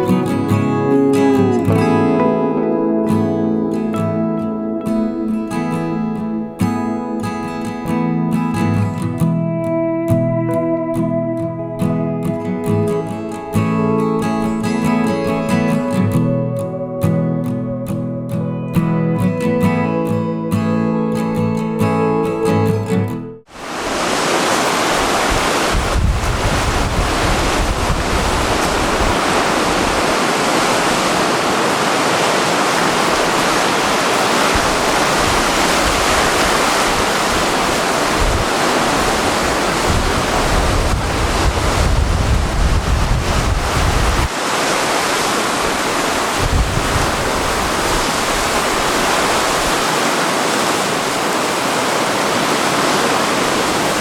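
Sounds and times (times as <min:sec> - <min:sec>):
sea surf breaking: 0:00.0 - 0:09.3, 0:11.8 - 0:17.2, 0:23.4 - 0:54.0
wind buffeting microphone: 0:24.8 - 0:44.3, 0:45.6 - 0:54.0.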